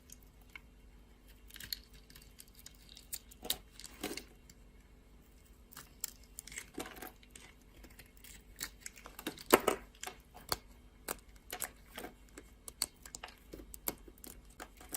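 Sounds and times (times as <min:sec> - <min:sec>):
knife cutting dry soap: 0:05.7 - 0:14.9.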